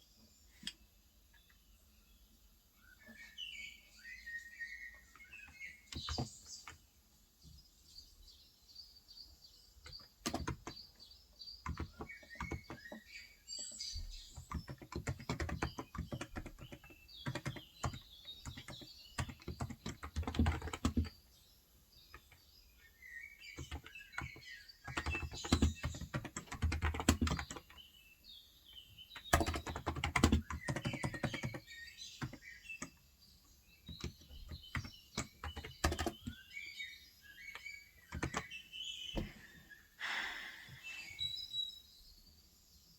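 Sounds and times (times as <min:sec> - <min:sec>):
small birds chirping: 0:00.0 - 0:42.9
keyboard typing: 0:05.2 - 0:06.8, 0:09.8 - 0:10.9, 0:11.6 - 0:13.0, 0:14.0 - 0:21.2, 0:23.6 - 0:27.8, 0:29.2 - 0:33.0, 0:33.8 - 0:36.5, 0:37.4 - 0:38.6.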